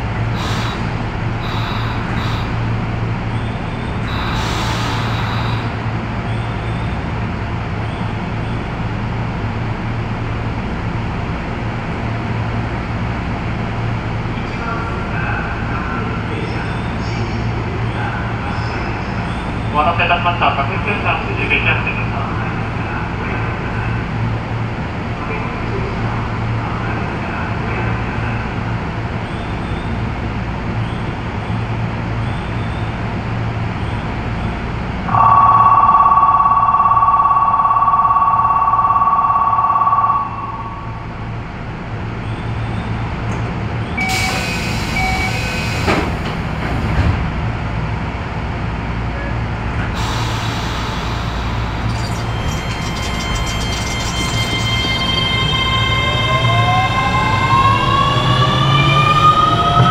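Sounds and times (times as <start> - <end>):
electric train humming: 0.0 - 17.0, 34.9 - 46.7, 49.6 - 59.9
departure signal tone: 35.1 - 41.4, 44.0 - 45.6, 50.0 - 59.9
door hiss: 50.0 - 51.8
train motor tones rising: 50.0 - 59.9.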